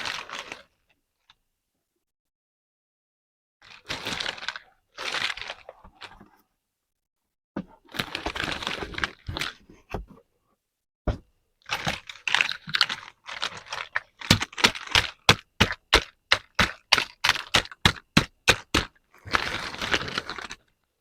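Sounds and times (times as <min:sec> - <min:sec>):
plastic packaging crinkling: 0:07.9 - 0:09.6, 0:11.7 - 0:16.0, 0:19.3 - 0:20.7.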